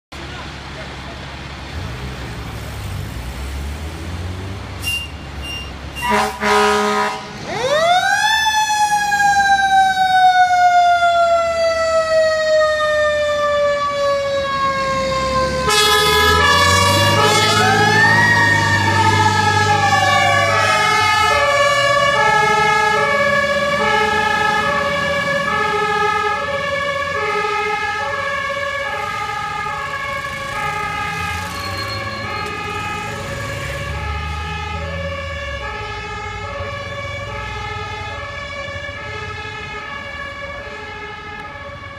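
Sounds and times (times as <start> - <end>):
truck engines rumbling: 0.1 - 41.9
short horn blasts: 4.8 - 7.4, 15.7 - 17.6
two-tone siren: 4.8 - 41.9
wailing siren: 6.0 - 41.9.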